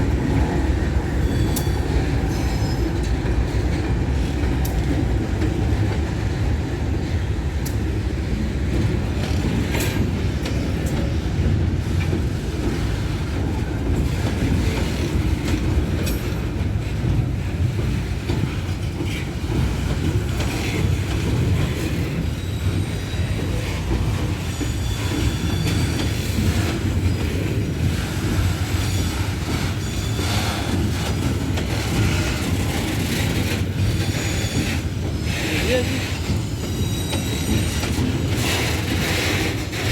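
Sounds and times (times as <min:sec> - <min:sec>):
freight train rumbling: 0:00.0 - 0:39.9
faint wheel squeal: 0:35.4 - 0:37.9.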